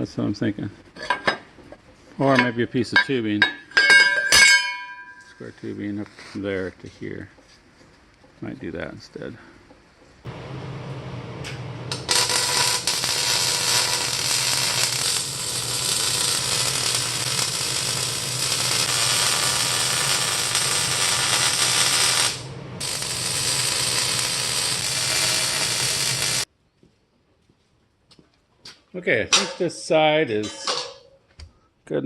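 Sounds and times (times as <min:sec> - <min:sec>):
welder low hum: 0:10.3 - 0:26.5
welding arc crackle: 0:11.5 - 0:26.5.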